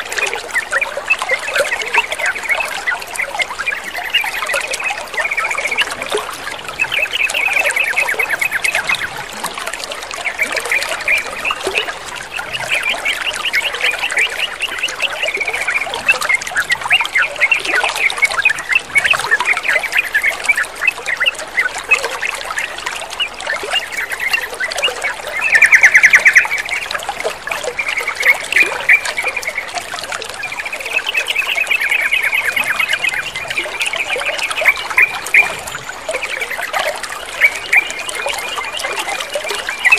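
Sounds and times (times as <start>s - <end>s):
trickling water: 0.0s - 39.9s
bulbuls chattering: 30.4s - 39.9s.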